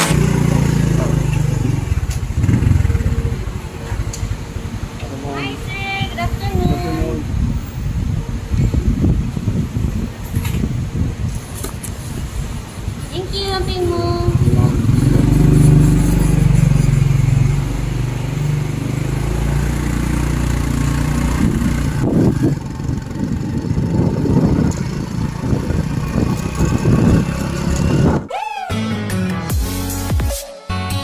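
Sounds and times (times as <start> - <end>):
motorcycle engine running: 0.0 - 5.2, 12.2 - 28.3
loud uneven noise: 11.4 - 28.3.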